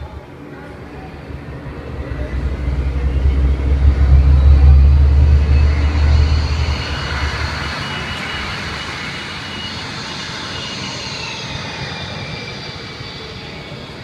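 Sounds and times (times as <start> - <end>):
jet engine over loudspeakers: 0.0 - 14.0
deep rumble: 0.7 - 10.4.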